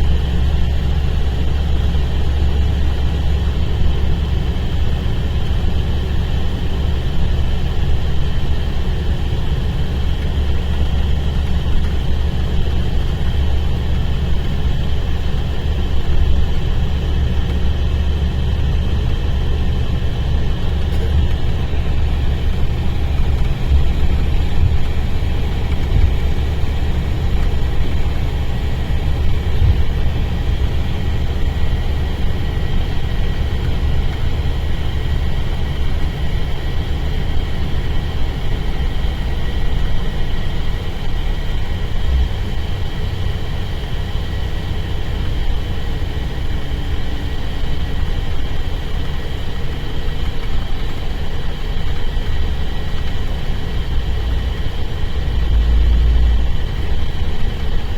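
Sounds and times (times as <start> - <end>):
diesel engine rumbling: 0.0 - 57.9
faint high whine: 53.8 - 57.9.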